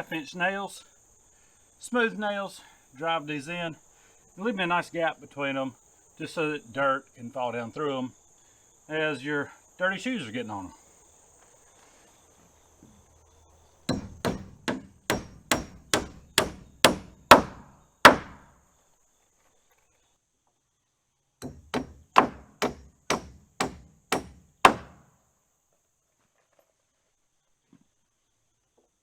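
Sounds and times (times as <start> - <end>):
hammer driving nails into wood: 13.9 - 18.5, 21.4 - 25.0.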